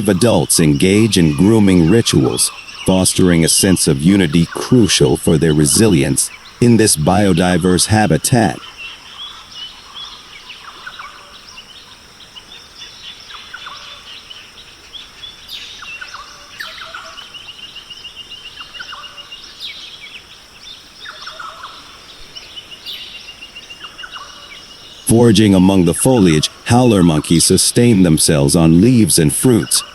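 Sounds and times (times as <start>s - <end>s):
bird trill: 0.0s - 29.9s
birds calling and chirping: 0.0s - 29.9s.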